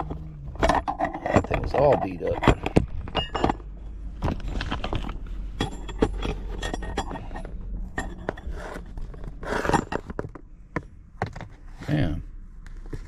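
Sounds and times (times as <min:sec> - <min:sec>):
metal parts clinking and scraping: 0:00.0 - 0:10.4.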